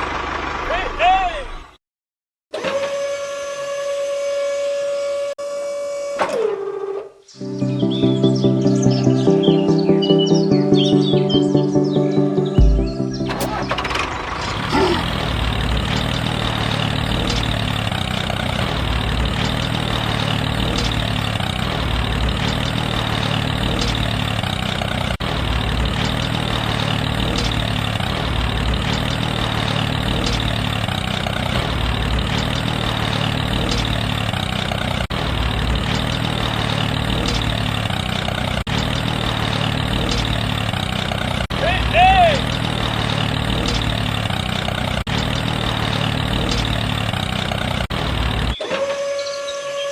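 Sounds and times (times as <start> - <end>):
small tractor engine running: 0.0 - 0.9, 12.6 - 49.9.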